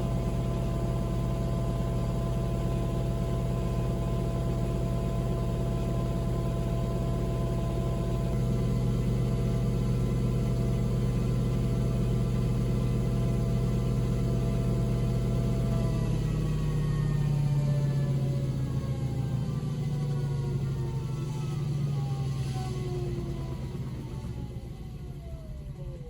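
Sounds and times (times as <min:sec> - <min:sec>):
washing machine motor hum: 0:00.0 - 0:18.9.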